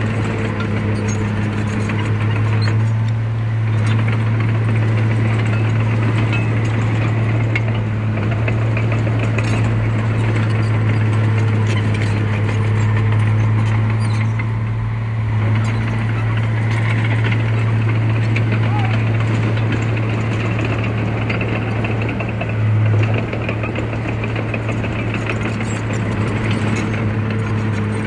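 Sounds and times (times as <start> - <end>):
heavy diesel engine droning: 0.0 - 28.0.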